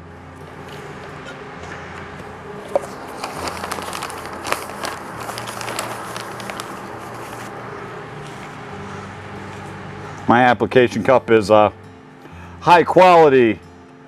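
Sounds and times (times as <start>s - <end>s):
potting mix rustling and crackling: 0.6s - 9.6s.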